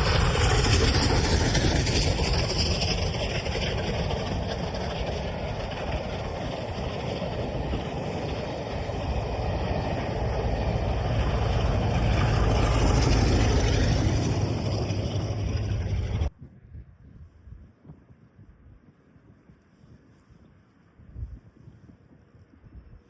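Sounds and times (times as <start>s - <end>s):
steam locomotive rumbling: 0.0s - 16.3s.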